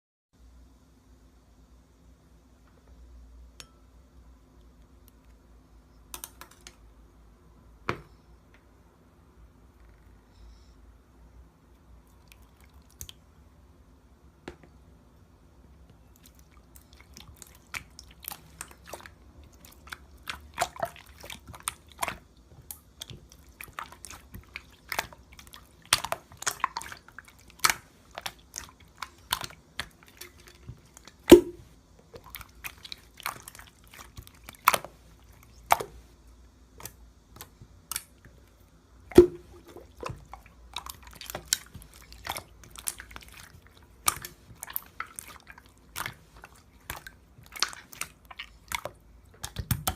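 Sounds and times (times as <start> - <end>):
slime squished by hand: 16.2 - 36.0, 39.1 - 49.9.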